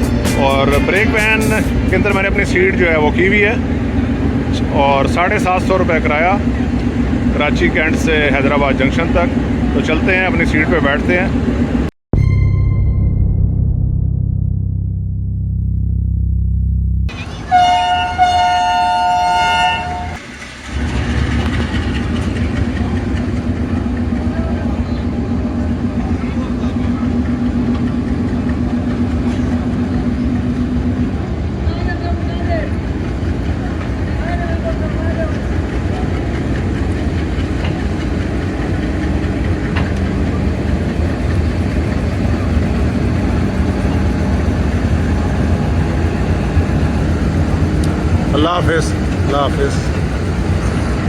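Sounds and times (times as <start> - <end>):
low diesel engine hum: 0.0 - 51.0
locomotive two-tone air horn: 17.1 - 20.3.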